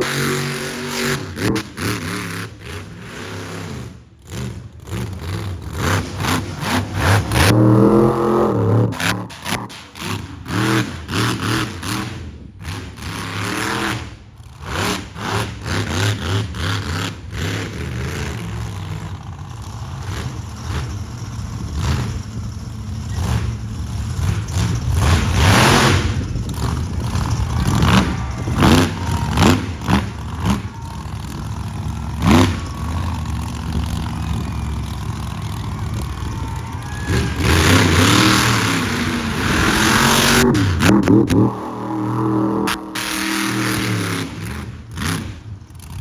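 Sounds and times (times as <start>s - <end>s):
monster truck engine revving: 0.0s - 46.0s.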